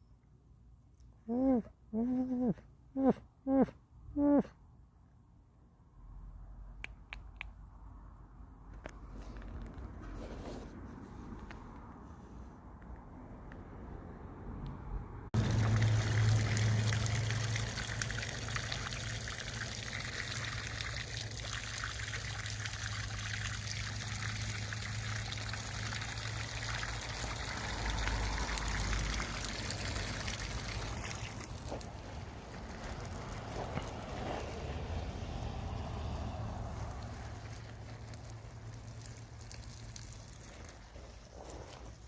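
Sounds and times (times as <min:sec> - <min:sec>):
water pouring and trickling: 0:15.4 - 0:42.0.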